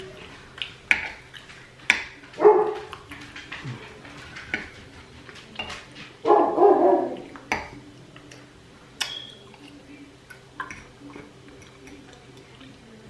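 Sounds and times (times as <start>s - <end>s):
dog barking: 2.3s - 3.0s, 6.2s - 7.4s.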